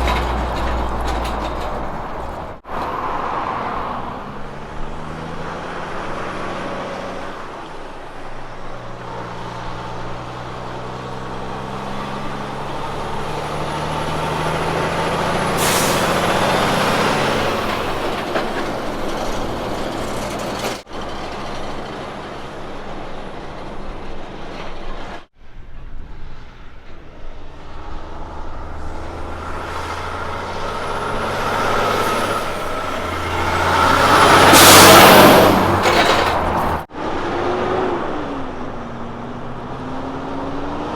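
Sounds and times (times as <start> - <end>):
truck diesel engines running: 0.0 - 40.9
air brake hiss: 15.5 - 16.8.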